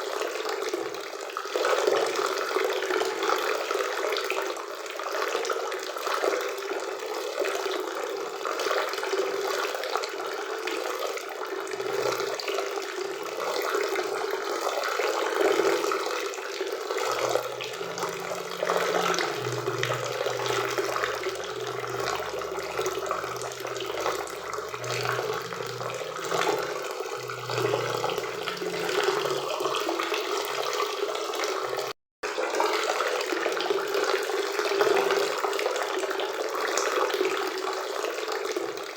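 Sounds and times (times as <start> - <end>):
faint low hum: 17.0 - 30.6.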